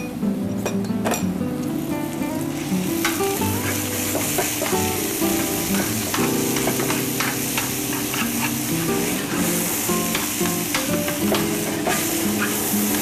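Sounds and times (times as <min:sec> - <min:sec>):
soft background music: 0:00.0 - 0:13.0
meat sizzling in hot oil: 0:01.7 - 0:13.0
metal tongs scraping a pan: 0:03.0 - 0:13.0.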